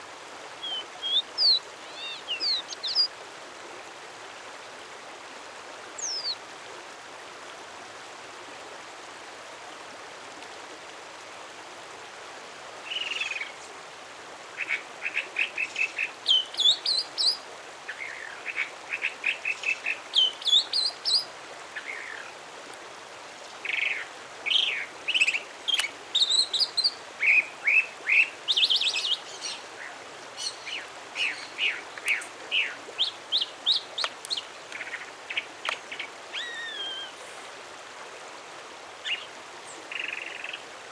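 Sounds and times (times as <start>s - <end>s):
steady background hiss: 0.0s - 40.9s
songbird singing: 0.6s - 3.1s, 6.0s - 6.4s, 14.6s - 22.3s, 23.6s - 37.5s, 39.0s - 40.7s.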